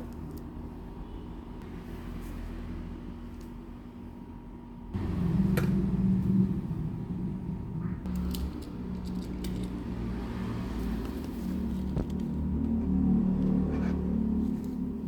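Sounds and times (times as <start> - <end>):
low steady hum: 0.0 - 15.0
toy vehicles clicking and rattling: 8.1 - 10.2.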